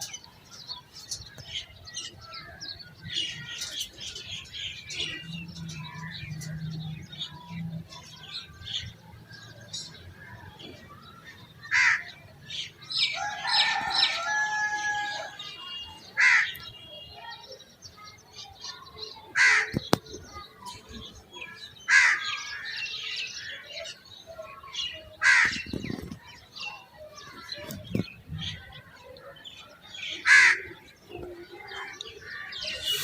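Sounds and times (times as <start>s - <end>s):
drawn-out bird call: 30.1s - 33.0s
shrill bird calls: 32.0s - 33.0s.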